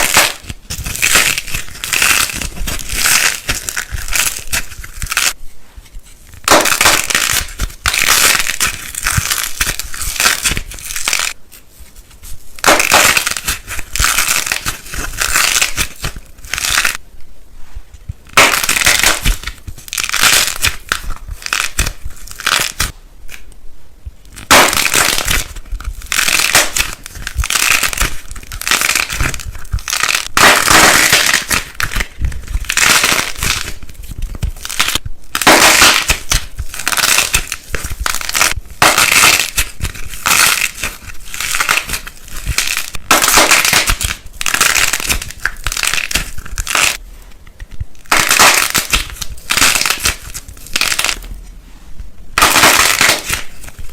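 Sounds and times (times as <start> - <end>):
brittle crunching: 0.0 - 5.4, 12.6 - 17.0, 24.3 - 47.0, 47.6 - 51.3, 52.4 - 53.9.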